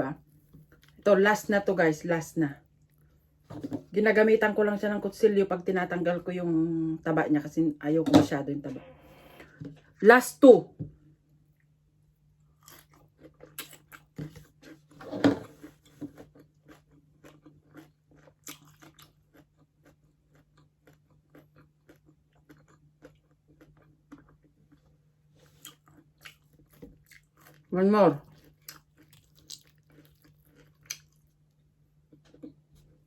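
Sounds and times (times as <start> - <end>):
chewing crispy pork skin: 12.4 - 14.9, 15.6 - 33.0.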